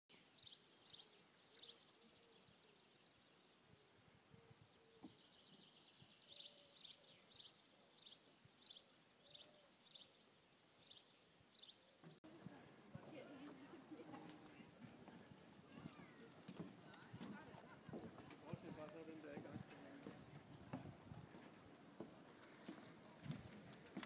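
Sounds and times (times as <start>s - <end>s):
bird chirping: 0.1s - 12.2s
background hiss: 0.1s - 16.2s.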